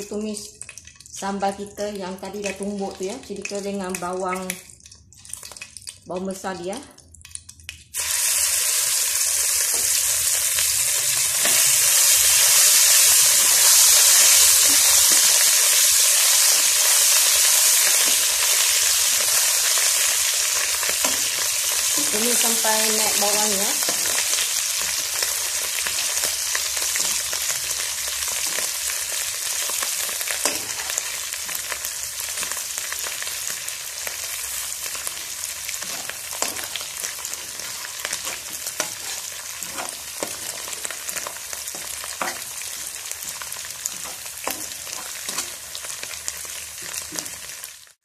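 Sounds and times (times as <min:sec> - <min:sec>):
paste sizzling in oil: 0:07.9 - 0:48.0
spatula scraping a pan: 0:35.8 - 0:45.8.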